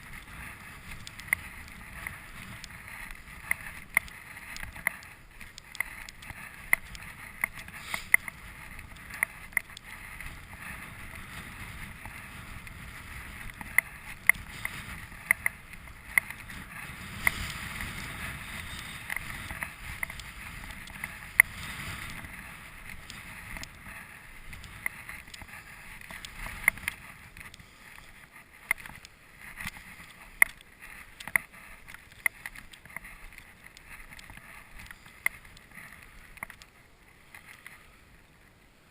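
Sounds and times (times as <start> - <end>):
footsteps crunching in snow: 0.0 - 15.2
steady wind: 0.0 - 38.9.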